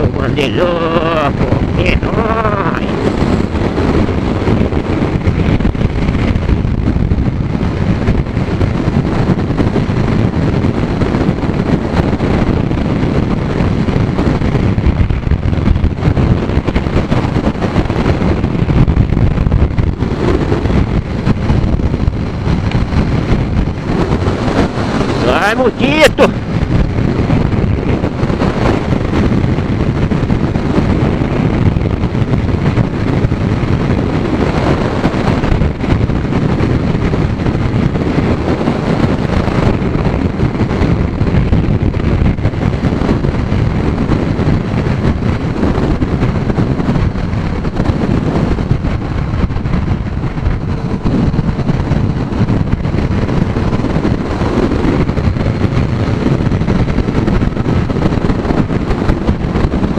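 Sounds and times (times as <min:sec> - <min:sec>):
motorcycle engine: 0:00.0 - 0:25.6
road noise: 0:00.0 - 0:59.9
wind buffeting microphone: 0:00.0 - 0:59.9.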